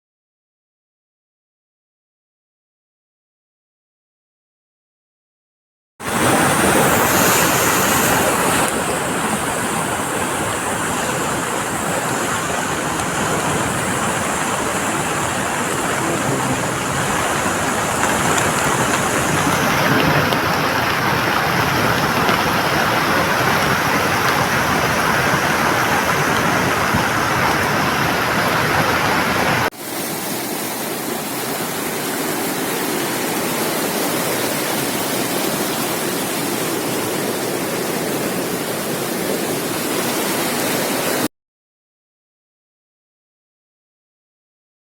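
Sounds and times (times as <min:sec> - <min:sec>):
water rushing in heavy rain: 0:06.0 - 0:41.3.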